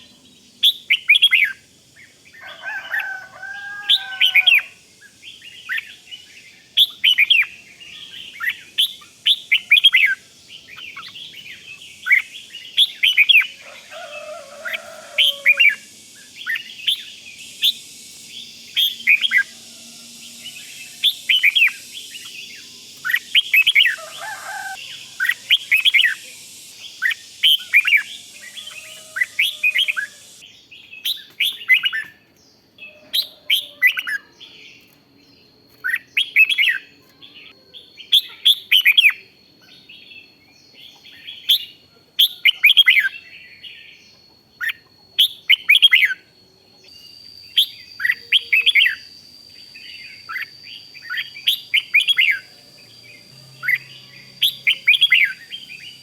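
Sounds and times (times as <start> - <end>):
bird chirping calls: 0.0 - 32.2, 35.6 - 56.0
lower whistled bird phrases: 2.8 - 32.1, 44.6 - 56.0.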